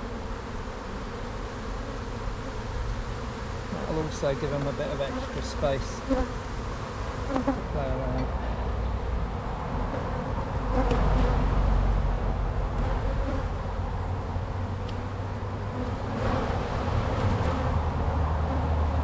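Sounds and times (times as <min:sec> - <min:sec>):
bees buzzing: 0:00.0 - 0:11.2, 0:12.0 - 0:19.0.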